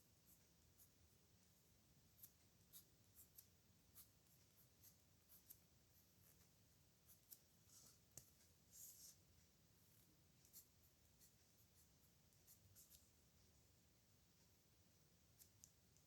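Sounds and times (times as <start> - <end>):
pen scratching on paper: 2.1 - 9.2, 9.9 - 13.1.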